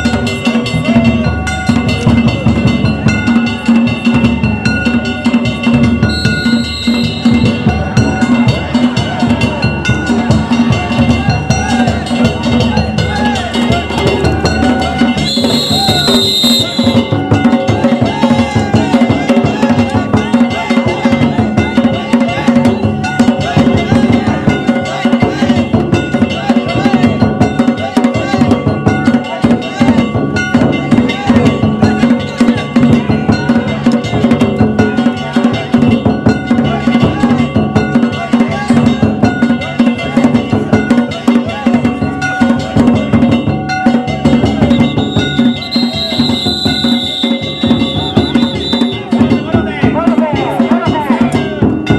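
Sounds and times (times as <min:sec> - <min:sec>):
fast continuous drumming: 0:00.0 - 0:51.9
steady ringing tones: 0:42.0 - 0:51.9.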